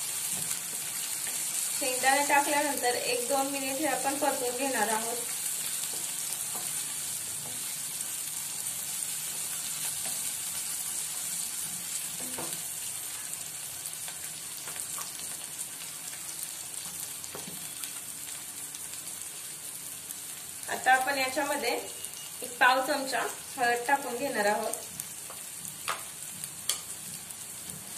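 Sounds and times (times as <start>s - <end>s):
food sizzling in hot oil: 0.0s - 27.9s
wooden spatula scraping and tapping: 5.9s - 6.8s.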